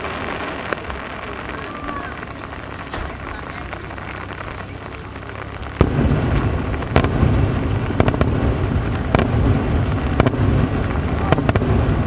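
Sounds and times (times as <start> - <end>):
fireworks booming: 0.0 - 12.0
fireworks cracks: 0.0 - 12.0
fireworks rumbling: 0.0 - 12.0
rain hissing: 0.0 - 12.0.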